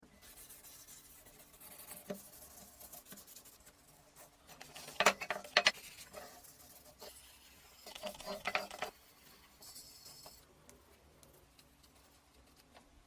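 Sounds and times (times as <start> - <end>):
hard object scraping by hand: 4.6 - 10.4.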